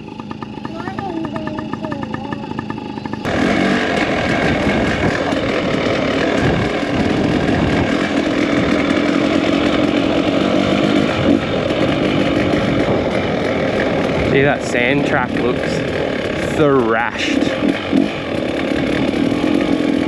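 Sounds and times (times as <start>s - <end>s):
dirt bike engine running: 0.0s - 20.0s
wind rushing over microphone: 3.3s - 16.7s.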